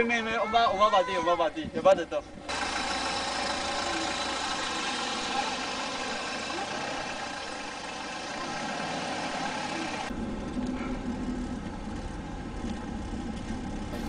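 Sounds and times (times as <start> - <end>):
car engine idling: 2.5 - 10.1, 11.3 - 14.0.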